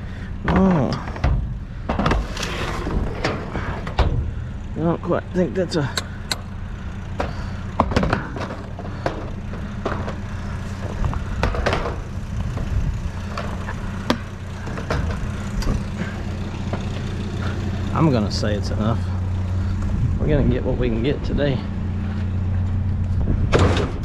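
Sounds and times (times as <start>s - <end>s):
low hum: 0.0s - 24.0s
junk knocking and rattling in dumpster: 0.4s - 4.5s, 7.1s - 17.6s, 23.2s - 24.0s.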